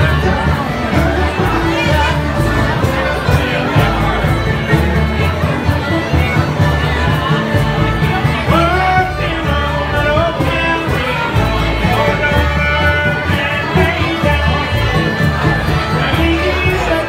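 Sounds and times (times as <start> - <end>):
bluegrass band playing: 0.0 - 17.0
person singing: 0.0 - 17.0.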